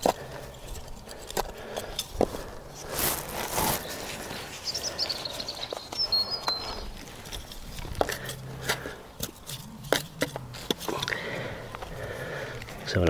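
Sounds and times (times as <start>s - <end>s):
small bird chirping: 3.6s - 7.2s.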